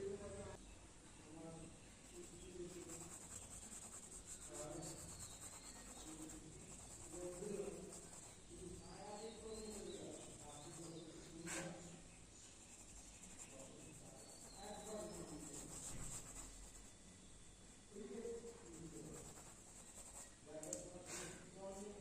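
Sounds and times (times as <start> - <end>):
faint voices speaking: 0.0 - 16.8.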